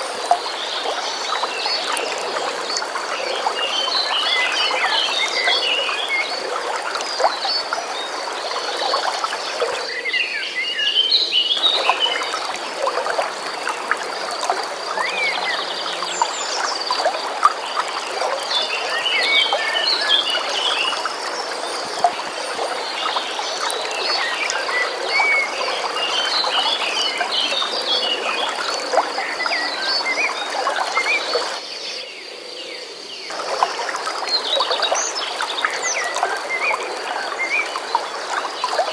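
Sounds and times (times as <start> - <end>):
running water: 0.0 - 31.8, 33.2 - 38.9.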